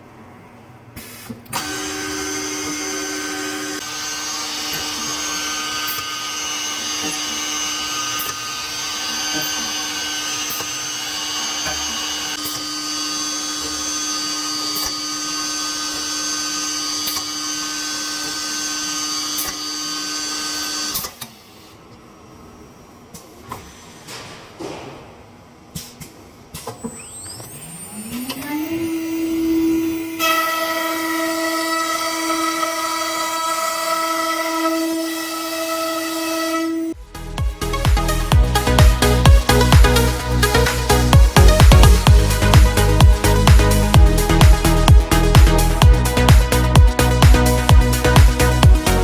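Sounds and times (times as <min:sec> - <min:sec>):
cnc router spindle whine: 0:01.6 - 0:20.9, 0:26.8 - 0:37.0.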